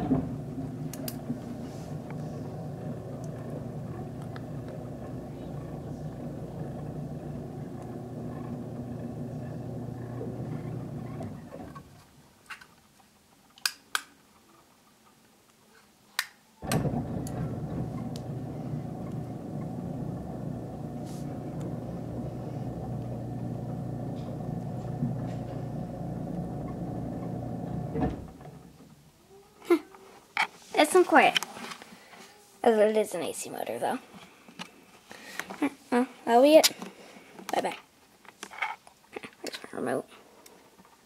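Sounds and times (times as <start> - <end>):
garage door opener motor humming: 0.0 - 12.1, 16.6 - 28.8.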